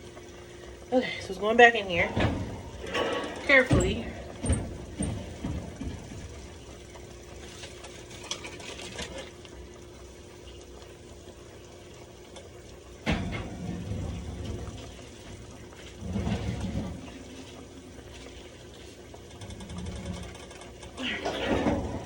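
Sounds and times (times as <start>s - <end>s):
low kitchen hum: 0.0s - 22.0s
rustling and handling noise: 2.5s - 9.6s.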